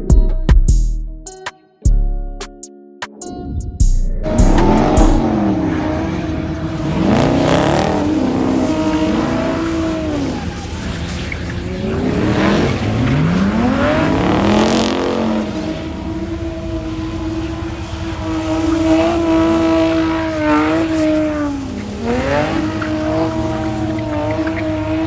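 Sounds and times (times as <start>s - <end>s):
car engine revving: 3.4s - 25.0s.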